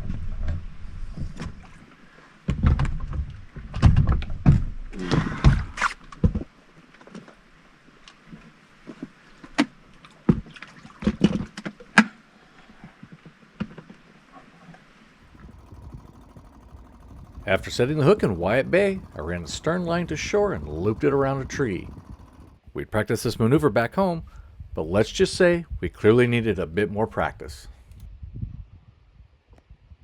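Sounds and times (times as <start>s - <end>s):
rumbling: 15.3s - 22.6s
dinghy gear knocking and clattering: 15.4s - 22.6s.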